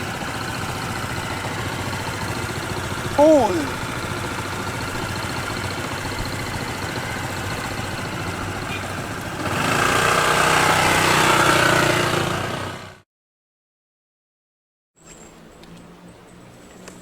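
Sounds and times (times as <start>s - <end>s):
scooter engine idling: 0.0s - 12.9s.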